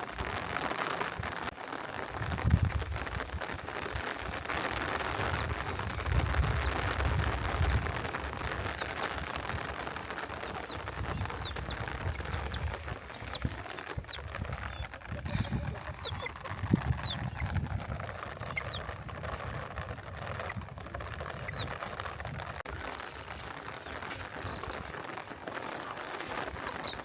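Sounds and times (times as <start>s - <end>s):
bird chirping: 5.1s - 17.5s, 18.3s - 18.9s, 20.3s - 20.6s, 21.4s - 21.7s, 22.7s - 27.0s.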